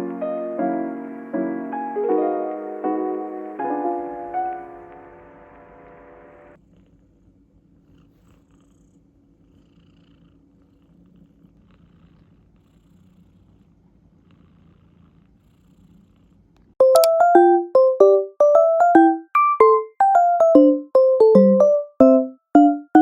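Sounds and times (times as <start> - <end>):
background music: 0.0 - 6.6, 16.8 - 23.0
electric piano music: 0.0 - 6.6, 16.8 - 23.0.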